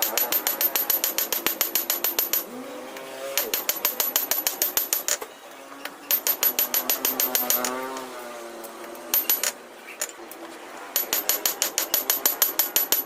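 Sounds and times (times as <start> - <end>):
power hammer striking steel: 0.0 - 2.5, 3.4 - 5.2, 6.1 - 8.0, 9.1 - 10.2, 11.0 - 13.0.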